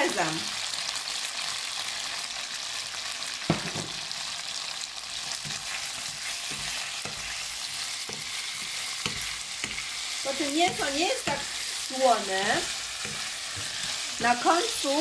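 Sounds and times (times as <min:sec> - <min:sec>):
meat sizzling in hot oil: 0:00.0 - 0:15.0
wooden spatula knocking on pan: 0:03.5 - 0:04.0, 0:10.6 - 0:11.5.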